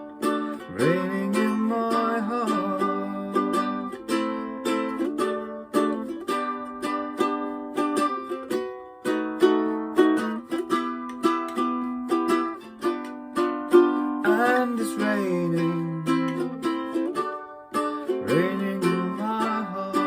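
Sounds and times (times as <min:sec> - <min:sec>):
plucked string instrument: 0:00.0 - 0:20.0.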